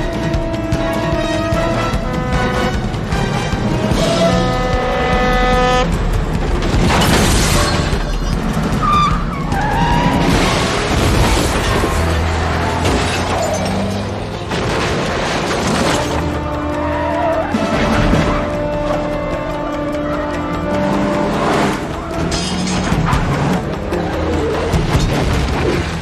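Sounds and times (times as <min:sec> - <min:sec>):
car and truck engines: 0:00.0 - 0:26.0
orchestral score: 0:00.0 - 0:26.0.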